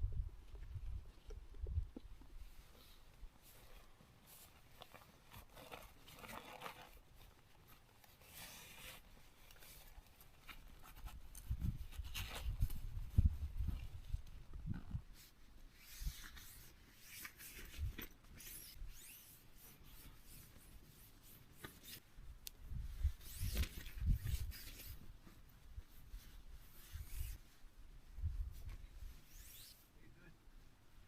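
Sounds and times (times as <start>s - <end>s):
soft rustling and rubbing: 2.2s - 22.1s, 22.7s - 29.9s
scratchy sounds: 29.2s - 29.9s.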